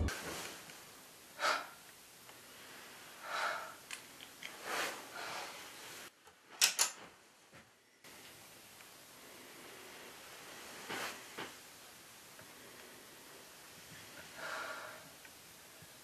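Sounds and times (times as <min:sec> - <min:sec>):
woman breathing heavily and gasping: 0:01.4 - 0:01.8, 0:03.1 - 0:03.9, 0:13.9 - 0:15.2.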